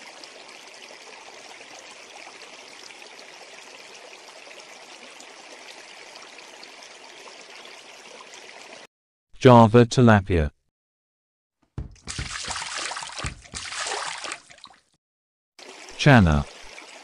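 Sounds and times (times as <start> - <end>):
faint trickling water: 0.0 - 8.9, 11.8 - 15.0, 15.6 - 17.0.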